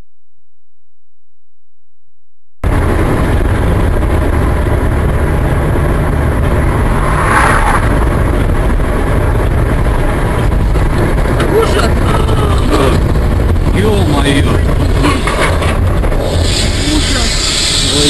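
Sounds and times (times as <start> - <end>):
road noise: 2.6 - 18.0
vehicle engine rumble: 2.6 - 18.0.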